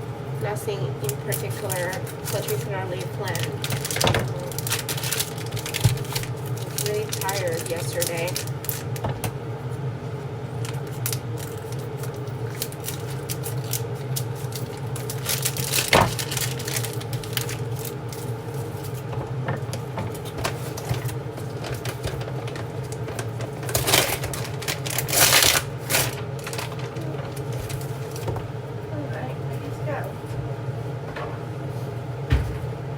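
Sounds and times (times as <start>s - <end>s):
steady low hum: 0.0s - 32.9s
kitchen clicks and clatters: 1.3s - 9.3s, 10.6s - 28.4s.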